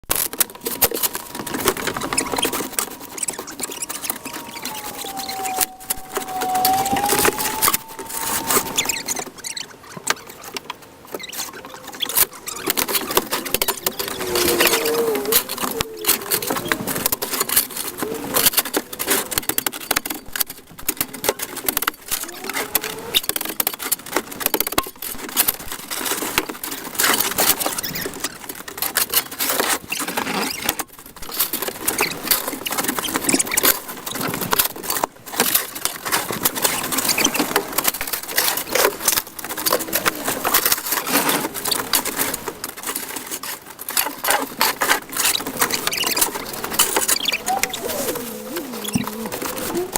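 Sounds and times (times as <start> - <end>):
short high squeaks: 0.6 - 10.4, 45.2 - 49.9.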